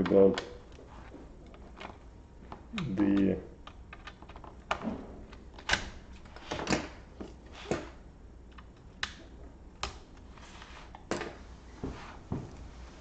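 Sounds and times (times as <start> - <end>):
plastic laptop parts clicking: 1.5 - 6.4.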